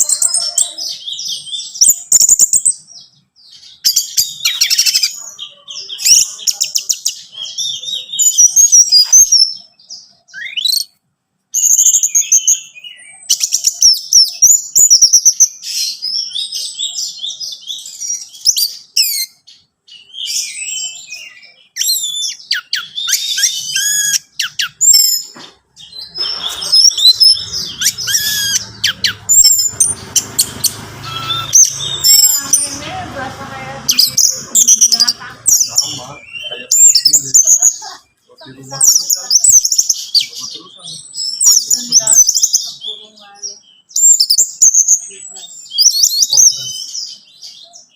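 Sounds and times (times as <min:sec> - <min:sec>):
thrush singing: 0:26.0 - 0:39.5.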